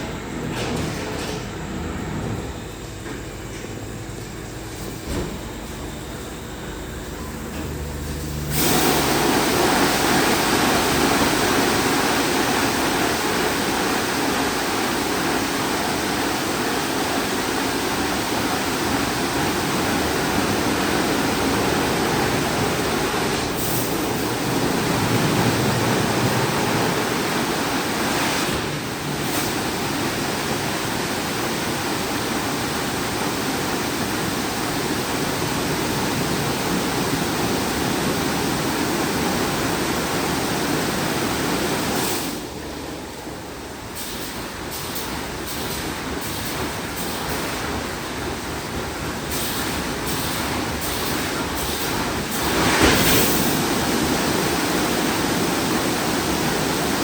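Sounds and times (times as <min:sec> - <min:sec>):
car wash spraying water: 0:08.5 - 0:42.5, 0:45.2 - 0:57.0.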